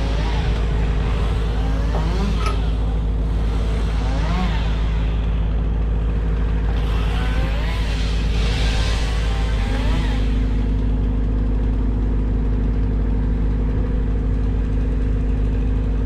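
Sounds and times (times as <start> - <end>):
rising and falling whine: 0.0 - 6.0, 6.7 - 11.0
engine droning: 0.0 - 16.0.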